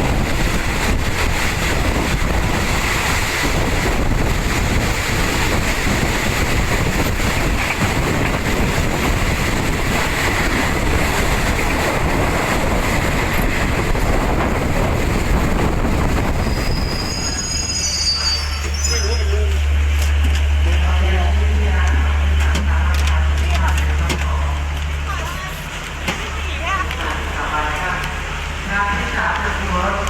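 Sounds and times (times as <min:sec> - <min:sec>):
rushing wind noise: 0:00.0 - 0:17.9
train wheels rumbling on rails: 0:00.0 - 0:30.0.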